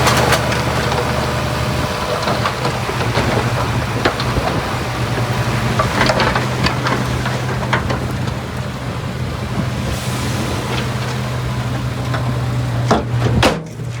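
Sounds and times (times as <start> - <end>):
diesel engine running: 0.0 - 14.0
rumble of moving dirt and rock: 0.0 - 14.0
loud metal clanks: 12.1 - 14.0.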